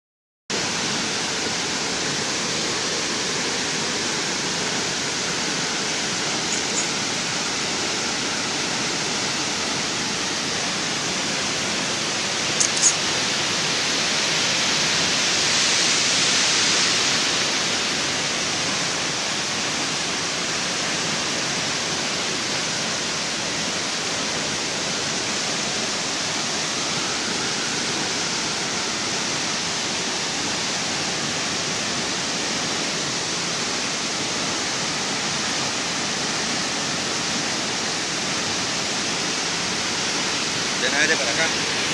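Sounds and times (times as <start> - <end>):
waterfall pouring: 0.5 - 41.9
sharp double click: 12.6 - 13.0.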